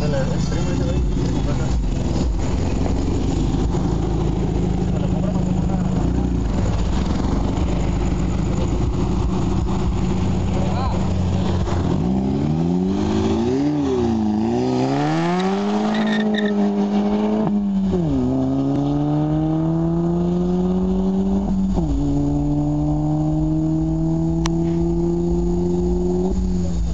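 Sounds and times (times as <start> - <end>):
car engine accelerating: 0.0 - 26.9.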